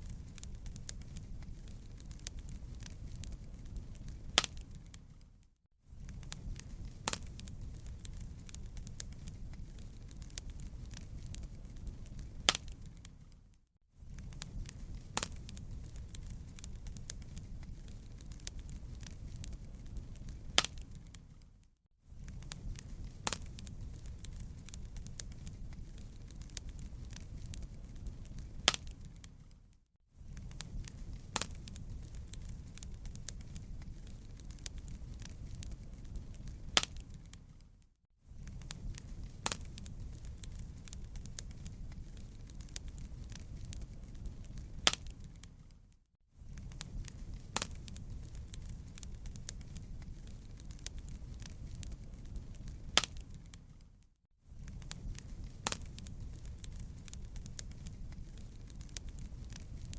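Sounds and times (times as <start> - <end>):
fire popping: 0.0 - 59.9
wood fire crackling: 0.0 - 59.9.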